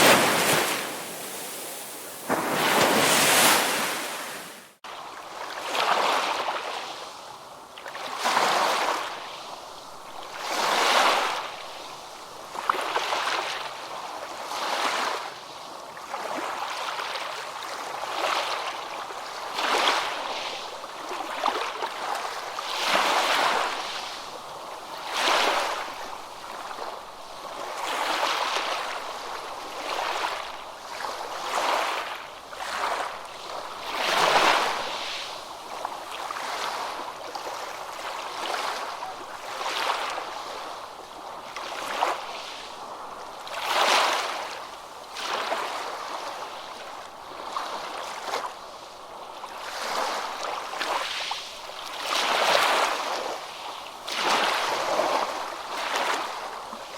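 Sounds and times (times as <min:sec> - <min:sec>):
ocean waves washing in: 0:00.0 - 0:04.8.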